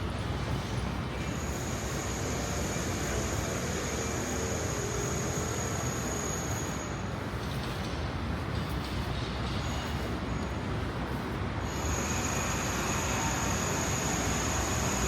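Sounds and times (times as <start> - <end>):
faint high whine: 11.7 - 15.0.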